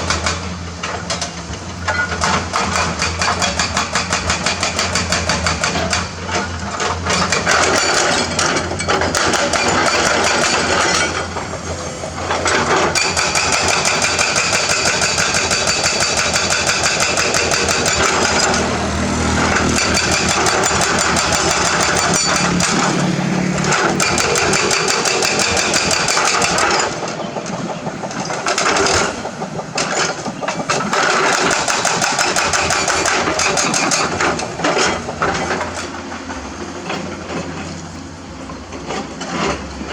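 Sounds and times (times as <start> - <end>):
diesel engine running hard: 0.0 - 39.9
rapid clatter of impacts: 19.4 - 37.8.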